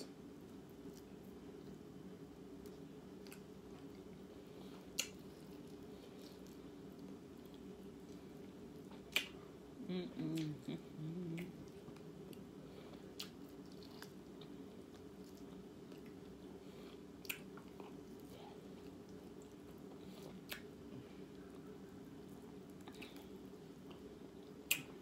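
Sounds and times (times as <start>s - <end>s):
steady low hum: 0.0s - 25.0s
person chewing food: 0.4s - 9.5s, 11.1s - 25.0s
person humming: 9.8s - 11.7s.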